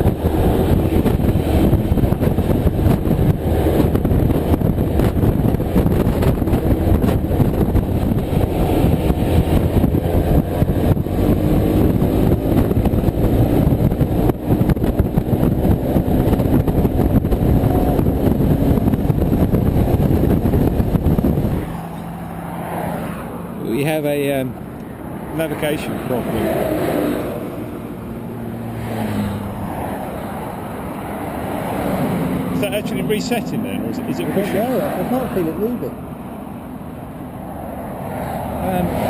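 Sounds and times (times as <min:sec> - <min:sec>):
wind noise on microphone: 0:00.0 - 0:23.5
motorcycle engine: 0:00.0 - 0:39.0.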